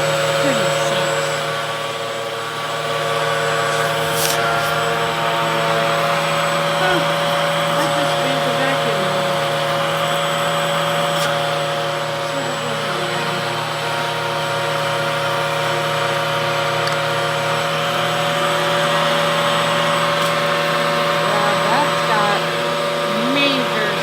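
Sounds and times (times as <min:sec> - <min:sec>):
vacuum cleaner motor whining: 0:00.0 - 0:24.0.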